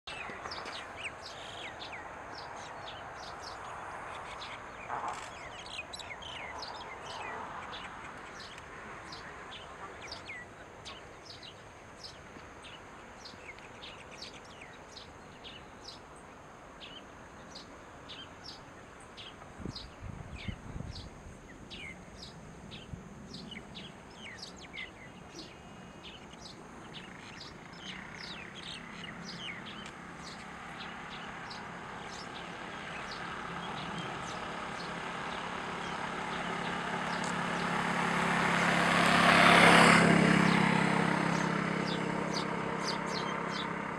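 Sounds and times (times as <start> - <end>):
motor vehicle hum: 25.2 - 43.9.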